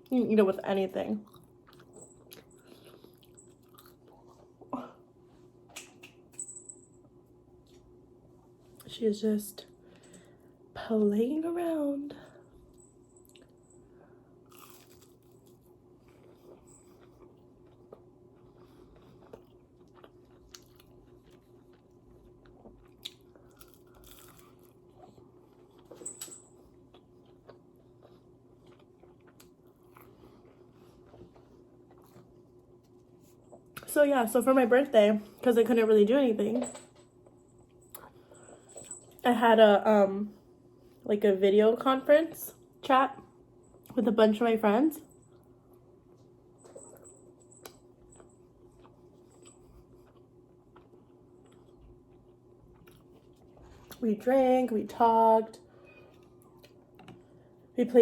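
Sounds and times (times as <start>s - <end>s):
faint steady hum: 0.0s - 58.0s
person chewing food: 1.2s - 4.7s, 14.4s - 26.0s, 26.7s - 33.9s, 46.6s - 54.0s, 56.0s - 57.5s.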